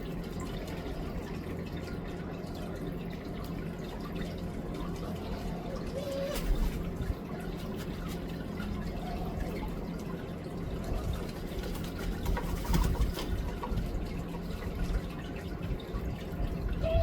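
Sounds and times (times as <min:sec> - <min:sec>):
water trickling: 0:00.0 - 0:17.0
faint bird calls: 0:05.3 - 0:06.8.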